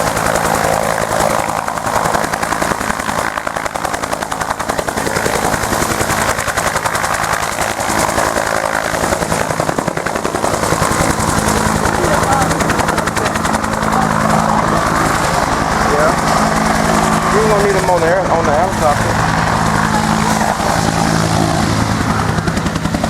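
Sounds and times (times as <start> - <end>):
helicopter engine noise: 0.0 - 23.0
helicopter rotor blade-slap: 0.0 - 23.0.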